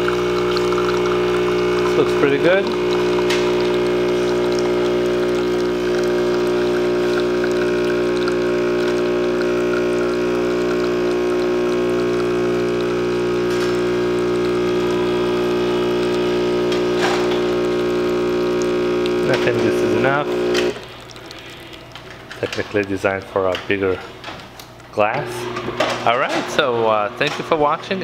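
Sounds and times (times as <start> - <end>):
espresso machine pump humming: 0.0 - 28.0.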